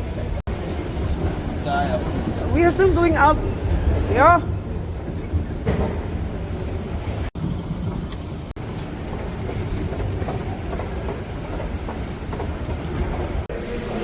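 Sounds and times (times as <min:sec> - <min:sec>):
train rumbling from inside carriage: 0:00.0 - 0:14.0.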